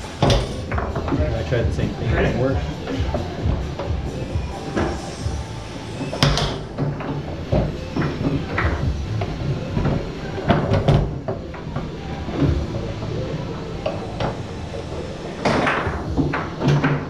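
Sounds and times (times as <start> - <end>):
foosball ball and men knocking: 0.0 - 1.9, 6.0 - 17.0
foosball rods sliding and clacking: 0.0 - 17.0.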